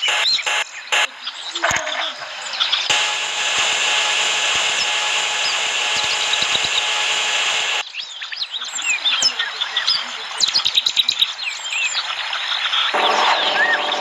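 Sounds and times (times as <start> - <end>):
birds chirping faintly: 0.0 - 2.9, 3.8 - 14.0
hissing motor whir: 2.9 - 7.8.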